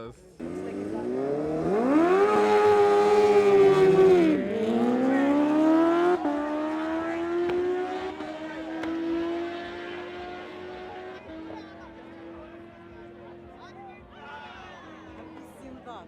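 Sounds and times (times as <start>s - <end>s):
motorcycle engine at full throttle: 0.3s - 14.2s.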